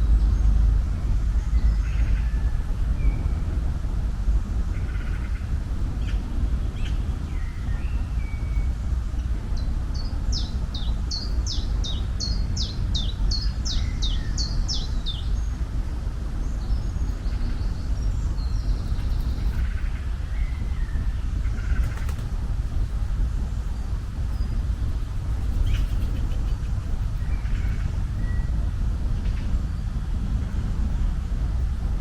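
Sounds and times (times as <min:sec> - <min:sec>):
low outdoor rumble: 0:00.0 - 0:32.0
songbird singing: 0:09.6 - 0:22.0, 0:22.7 - 0:28.6
faint bird chirps: 0:25.4 - 0:28.6.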